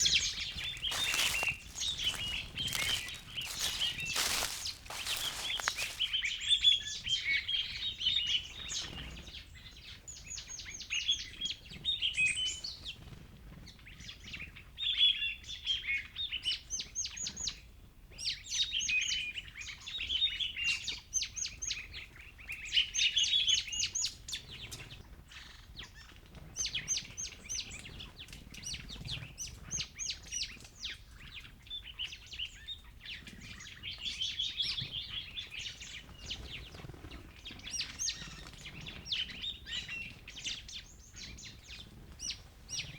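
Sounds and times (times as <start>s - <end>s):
small birds chirping and singing: 0.0s - 11.2s, 26.6s - 42.9s.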